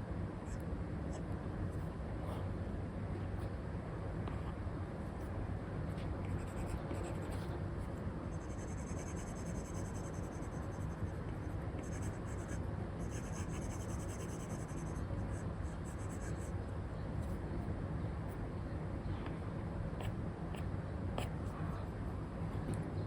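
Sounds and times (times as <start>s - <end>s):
low background noise: 0.0s - 23.0s
stylus scratching on screen: 6.3s - 7.6s, 8.3s - 16.6s.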